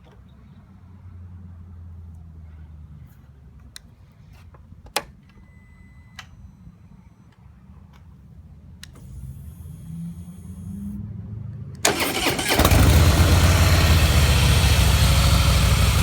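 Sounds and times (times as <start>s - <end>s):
motorcycle clicks: 11.8s - 13.0s.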